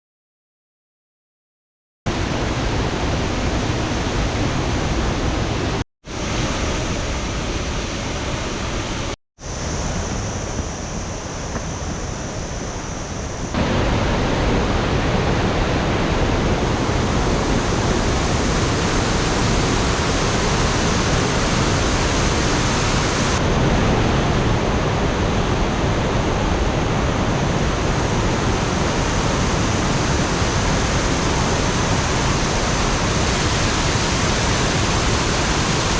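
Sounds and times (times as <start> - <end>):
waterfall rushing: 13.5 - 35.9.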